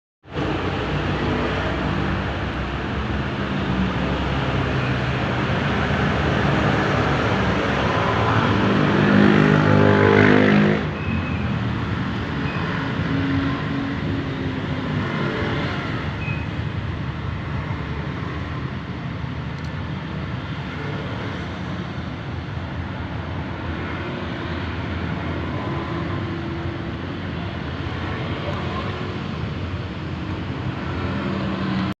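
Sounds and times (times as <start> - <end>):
vehicle rumble and hiss: 10.9 - 31.9.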